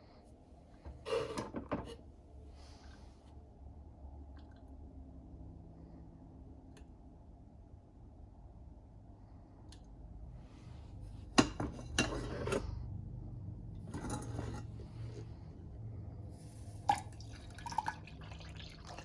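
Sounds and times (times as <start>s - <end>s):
cup and kitchenware clinking: 11.4s - 12.6s, 13.9s - 14.7s
dishware handling noise: 11.4s - 12.6s, 13.9s - 14.7s.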